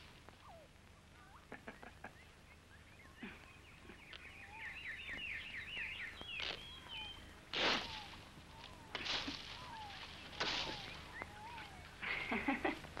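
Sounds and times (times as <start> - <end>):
bird warbling trill: 2.1 - 12.0
bird whistles: 3.9 - 8.8.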